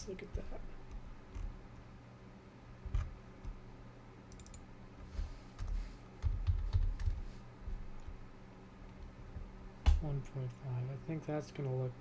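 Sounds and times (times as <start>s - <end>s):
steady low hum: 0.0s - 12.0s
keyboard key presses: 5.6s - 7.2s.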